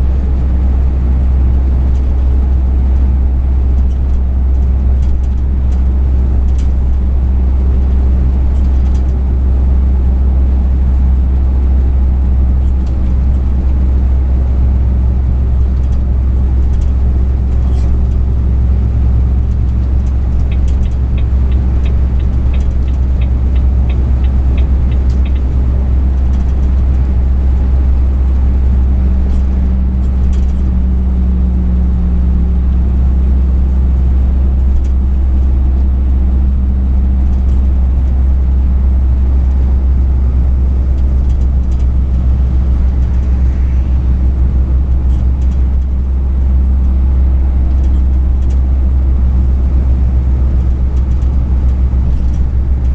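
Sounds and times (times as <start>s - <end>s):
road noise: 0.0s - 52.9s
truck engine droning: 0.0s - 52.9s
evenly spaced ticks: 20.0s - 25.6s.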